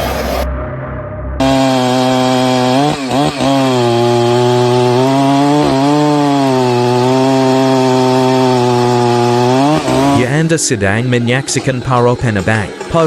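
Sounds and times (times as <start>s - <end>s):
chainsaw running at high revs: 1.4s - 13.0s.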